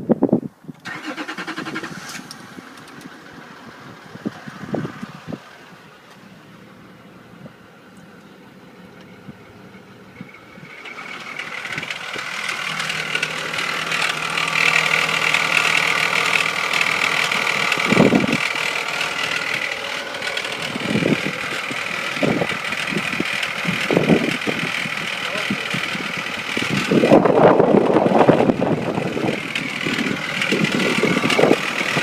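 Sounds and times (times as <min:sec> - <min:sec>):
car engine running: 0:00.8 - 0:32.0
high-pitched engine noise: 0:09.5 - 0:32.0.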